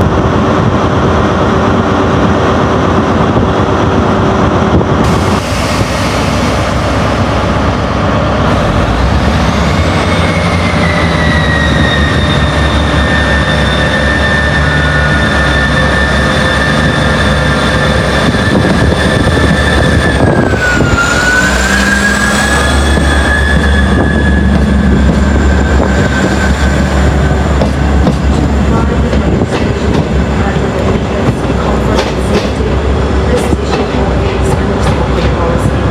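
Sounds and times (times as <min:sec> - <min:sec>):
train engine hum: 0:00.0 - 0:35.9
high whining tones: 0:08.4 - 0:28.9.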